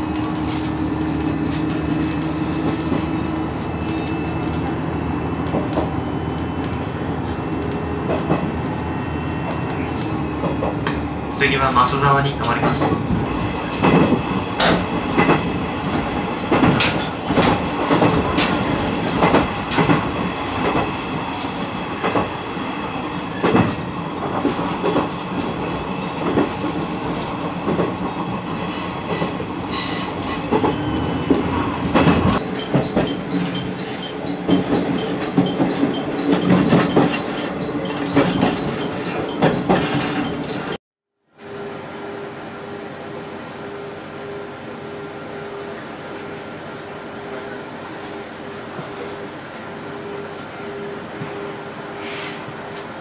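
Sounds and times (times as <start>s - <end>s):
railcar rumble: 0.0s - 53.0s
wheels clicking over rail joints: 30.2s - 40.8s.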